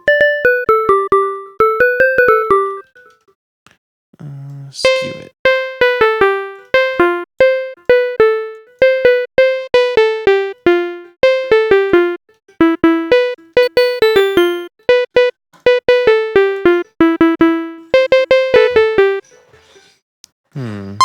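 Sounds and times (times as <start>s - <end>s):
plucky synth notes: 4.9s - 19.2s.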